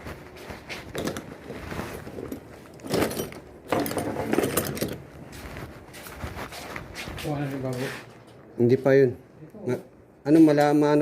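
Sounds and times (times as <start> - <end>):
metal frame clinking and rattling: 0.9 - 5.1.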